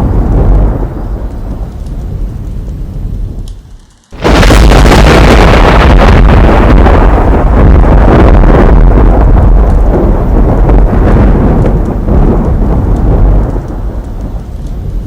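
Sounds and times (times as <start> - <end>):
faint clicks: 1.2 - 4.1, 11.7 - 14.8.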